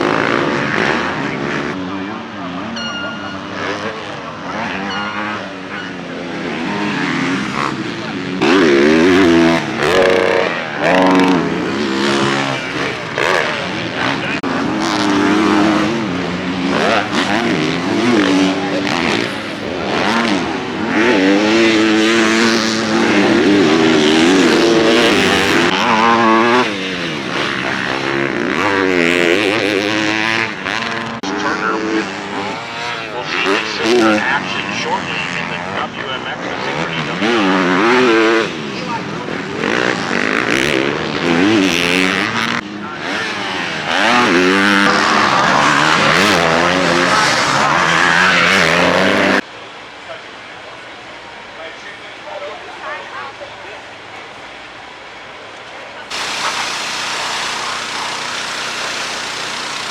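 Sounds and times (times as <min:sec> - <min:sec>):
motocross bike engines revving: 0:00.0 - 0:49.5, 0:56.0 - 0:59.9.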